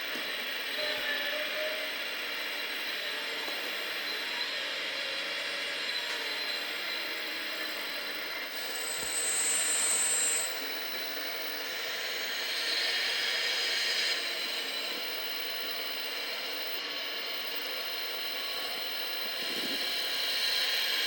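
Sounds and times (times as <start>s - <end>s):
high-pitched electric whine: 0.0s - 21.0s
steady hiss: 8.6s - 15.2s.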